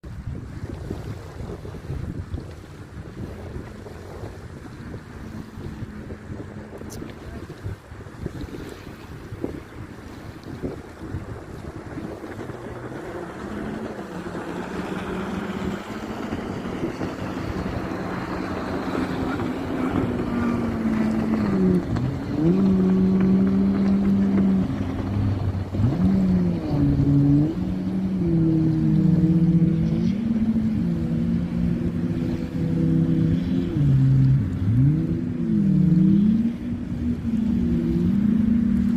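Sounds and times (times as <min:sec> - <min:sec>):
motorboat engine running: 0:00.0 - 0:38.9
wind on the microphone: 0:00.0 - 0:38.9.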